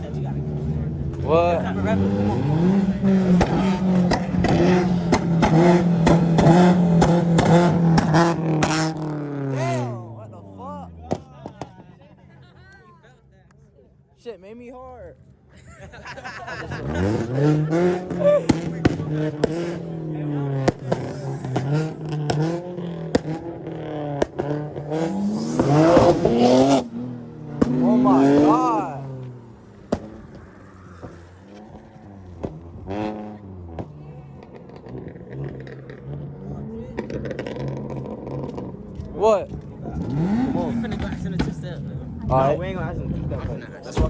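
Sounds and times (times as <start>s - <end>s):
car engine at rev limiter: 0.0s - 11.9s, 16.3s - 44.0s
exhaust pops and bangs: 3.3s - 9.0s, 29.2s - 32.9s, 36.9s - 41.8s
sharp exhaust pops: 29.8s - 32.9s.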